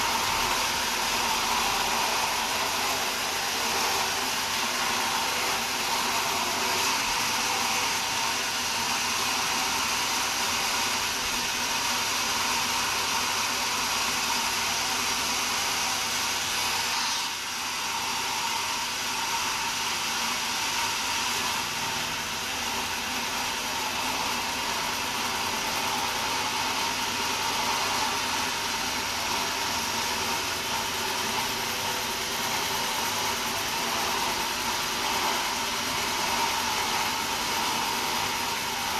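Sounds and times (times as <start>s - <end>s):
sawmill saw whirring: 0.0s - 38.9s.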